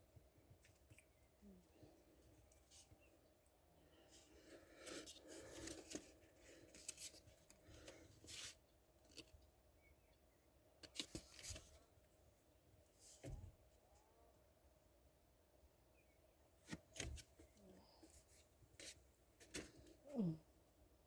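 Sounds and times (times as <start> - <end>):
faint clicks and rustles: 4.1 - 9.5.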